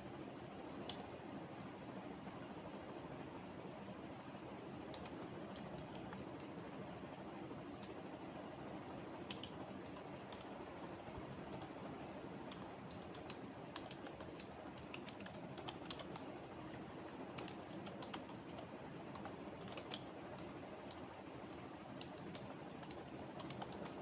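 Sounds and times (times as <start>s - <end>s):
keyboard keystroke clicks: 4.9s - 6.6s, 9.3s - 10.5s, 12.5s - 21.0s, 22.0s - 24.0s.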